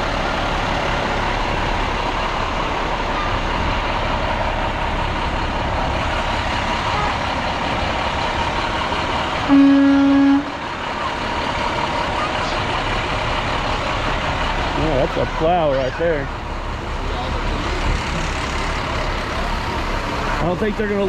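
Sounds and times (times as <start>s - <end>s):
truck engines running: 0.0s - 21.0s
truck horn blast: 9.4s - 10.8s.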